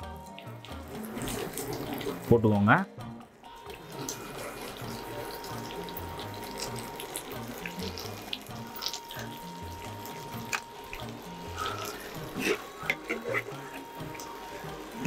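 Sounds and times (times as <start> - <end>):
chicken wings sizzling in oil: 0.0 - 15.0.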